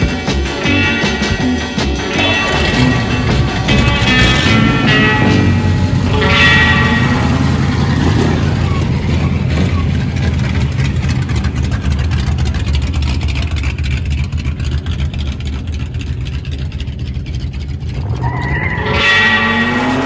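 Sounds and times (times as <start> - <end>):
car engines rumbling: 0.0 - 20.0
engine revving: 1.0 - 20.0.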